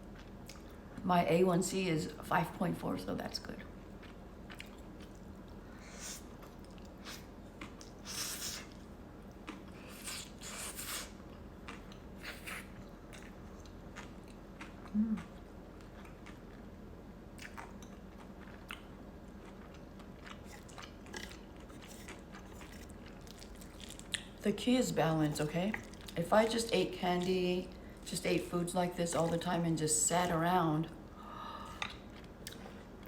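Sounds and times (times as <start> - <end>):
person chewing: 3.9 - 16.7, 17.4 - 24.4, 25.7 - 26.2, 31.7 - 33.0
low vocal hum: 14.9 - 15.4.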